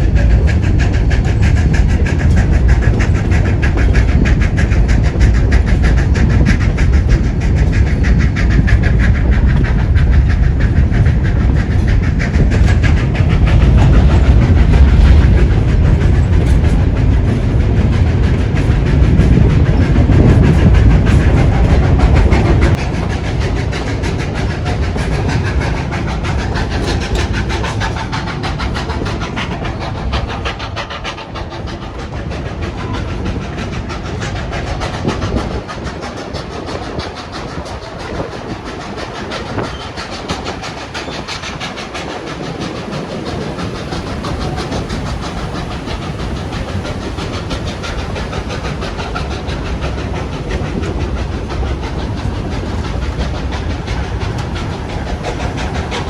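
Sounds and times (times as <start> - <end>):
train wheels clattering on rails: 0.0 - 56.0.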